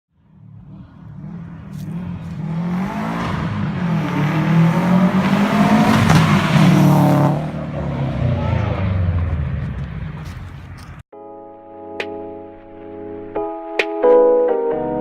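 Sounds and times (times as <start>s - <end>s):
car engine accelerating hard: 0.2s - 11.0s.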